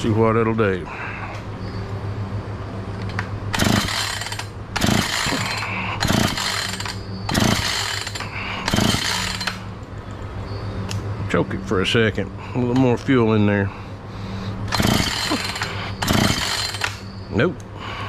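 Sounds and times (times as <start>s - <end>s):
steady low hum: 0.0s - 18.0s
chainsaw pull-start cranking: 3.5s - 9.6s, 14.7s - 17.0s.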